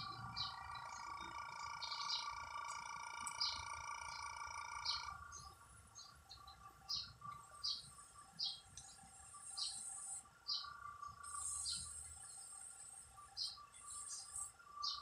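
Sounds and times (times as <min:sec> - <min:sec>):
thin high buzz: 0:00.0 - 0:05.4
bird chirping: 0:00.0 - 0:15.0
faint high hum: 0:00.0 - 0:15.0.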